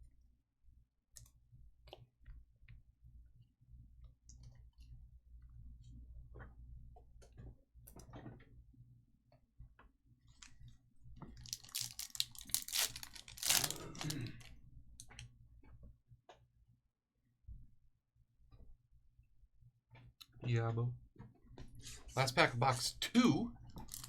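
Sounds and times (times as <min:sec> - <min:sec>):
foil wrapper tearing and crinkling: 0:11.4 - 0:14.5, 0:23.8 - 0:24.0.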